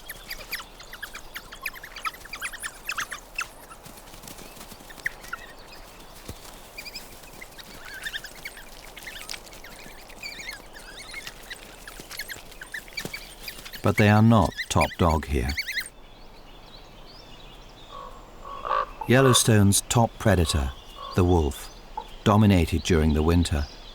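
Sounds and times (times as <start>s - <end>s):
coyote pups squeaking and yipping: 0.0s - 15.9s.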